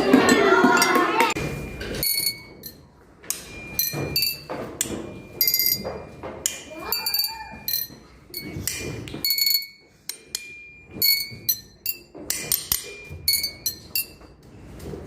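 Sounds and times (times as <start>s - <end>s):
glasses tapped ringing notes: 0.1s - 14.4s.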